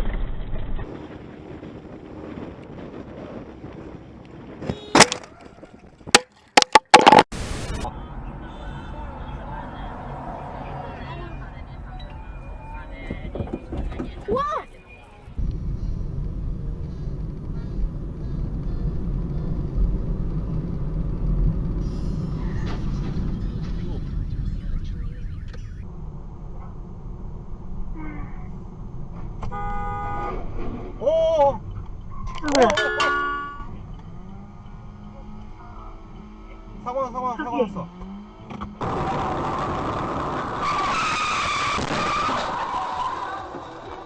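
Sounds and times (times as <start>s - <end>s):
vehicle engine and road noise: 0.0s - 44.0s
low steady rumble: 15.3s - 32.3s.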